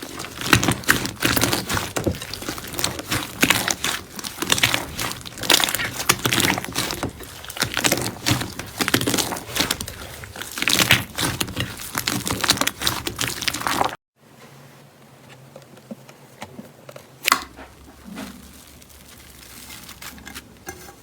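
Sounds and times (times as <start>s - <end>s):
slime crackling and squelching: 0.0s - 14.0s, 17.2s - 20.9s.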